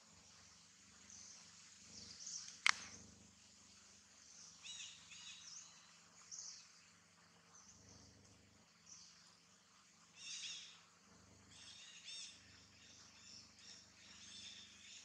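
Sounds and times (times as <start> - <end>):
small birds chirping: 0.0 - 15.0
sharp click: 2.5 - 3.0.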